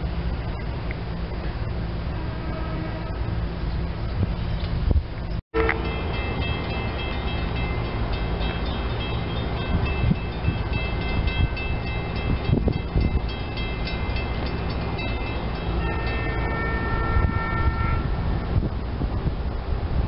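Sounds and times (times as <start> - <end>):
train low rumble: 0.0 - 20.0
high steady tones: 5.6 - 17.3.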